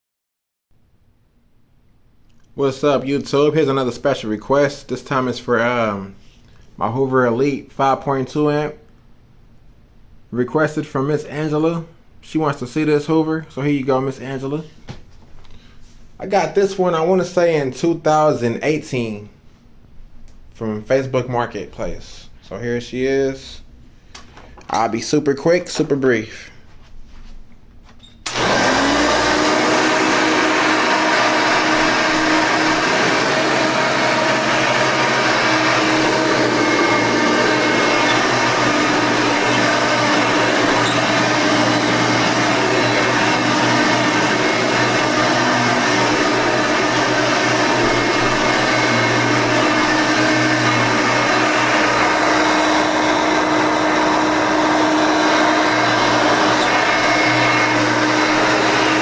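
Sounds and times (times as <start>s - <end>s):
vacuum cleaner motor whine: 28.3s - 59.0s.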